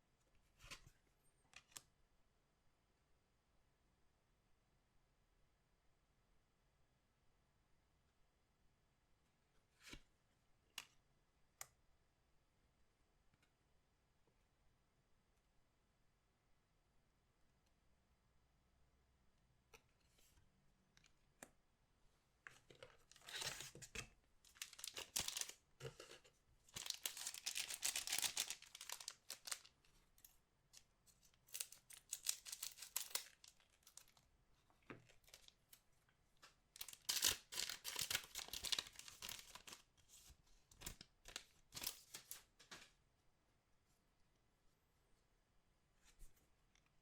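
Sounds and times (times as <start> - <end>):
card pack wrappers tearing: 24.5 - 25.6, 26.8 - 29.7, 31.5 - 34.1, 36.8 - 39.8.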